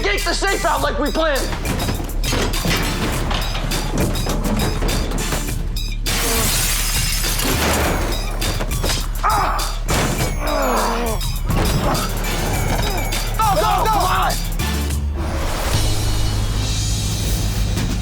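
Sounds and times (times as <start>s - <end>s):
crashes and knocks: 1.4s - 9.2s
glass shattering: 1.4s - 13.4s
tense dramatic score music: 7.7s - 18.0s.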